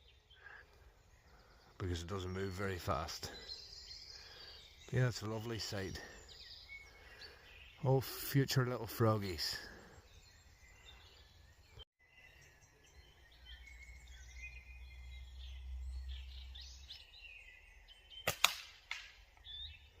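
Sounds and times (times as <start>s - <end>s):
songbirds singing and chirping: 0.0s - 20.0s
sharp clicks: 18.3s - 19.2s.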